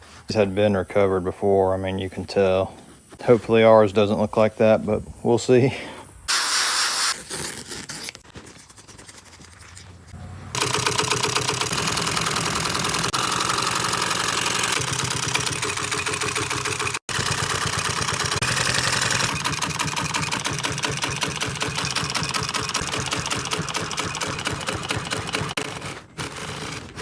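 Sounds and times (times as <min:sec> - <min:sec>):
industrial sewing machine stitching: 0:10.5 - 0:27.0.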